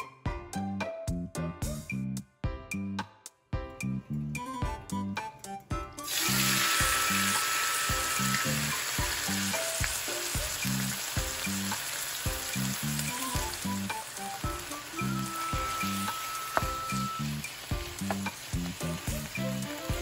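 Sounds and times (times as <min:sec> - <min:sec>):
soft background music with beat: 0:00.0 - 0:20.0
liver sizzling in hot oil: 0:06.0 - 0:20.0.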